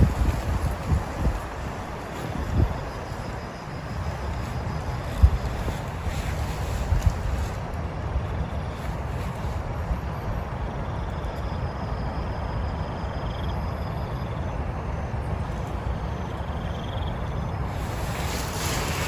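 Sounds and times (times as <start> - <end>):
wind rumbling on microphone: 0.0 - 19.0
heavy rain hissing: 17.6 - 19.0.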